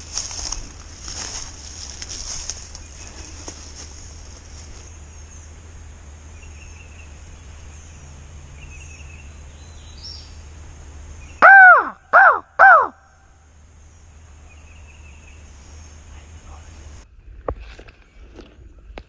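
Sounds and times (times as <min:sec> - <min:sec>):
crow cawing: 0:11.4 - 0:13.1.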